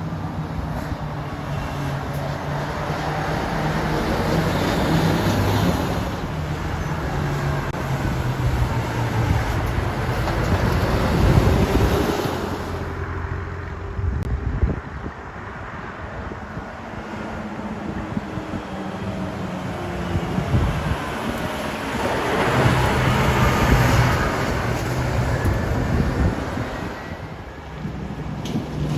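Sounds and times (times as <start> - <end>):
tyre noise on road: 0.0 - 28.9
diesel truck driving past: 15.3 - 28.9.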